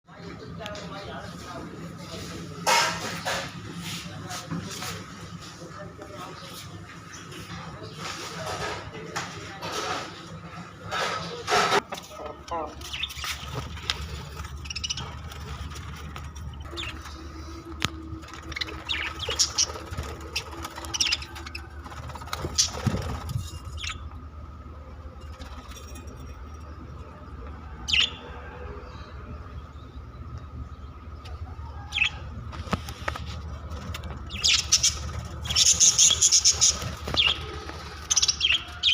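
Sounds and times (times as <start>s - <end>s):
budgerigars chirping: 12.7s - 15.6s, 18.4s - 21.7s, 23.7s - 24.1s, 34.3s - 38.9s.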